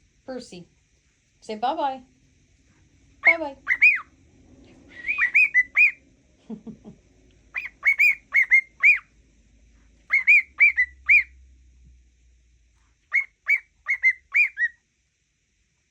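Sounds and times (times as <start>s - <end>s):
cockatiel whistled chirps: 3.2s - 4.1s, 5.0s - 6.0s, 7.6s - 9.1s, 10.1s - 11.3s, 13.1s - 14.8s.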